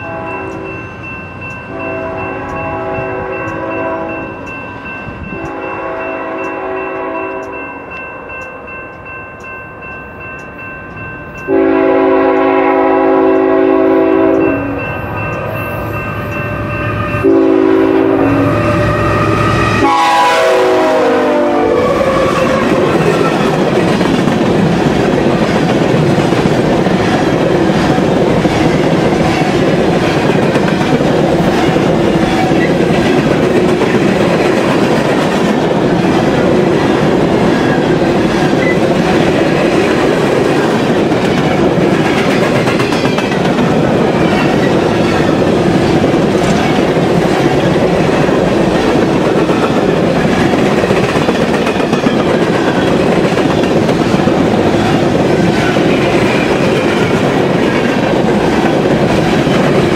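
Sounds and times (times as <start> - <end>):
locomotive air horn blasts: 0.0 - 0.8, 1.7 - 4.2, 5.4 - 7.5, 11.5 - 14.8, 16.8 - 22.8
freight cars rumbling on rails: 11.8 - 59.9.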